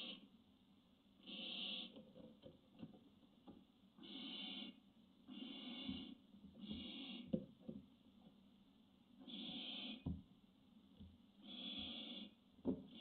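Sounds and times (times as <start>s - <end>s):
owl rasping hissing calls: 0.0s - 0.3s, 1.2s - 2.0s, 4.0s - 7.3s, 9.2s - 10.1s, 11.4s - 13.0s.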